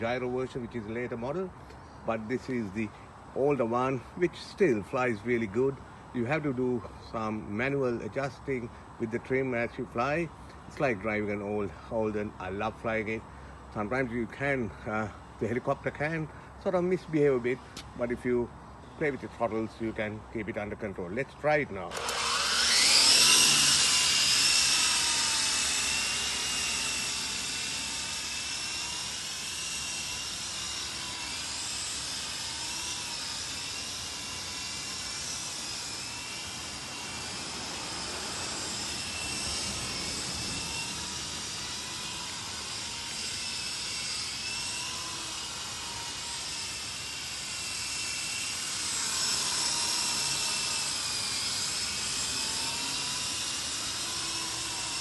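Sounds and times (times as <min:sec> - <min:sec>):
toy helicopter rotors whining: 0:21.2 - 0:55.0.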